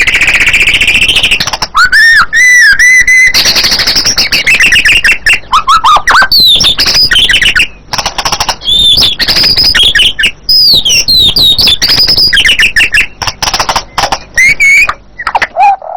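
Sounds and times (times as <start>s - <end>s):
bird singing whistles and trills: 0.0s - 15.9s.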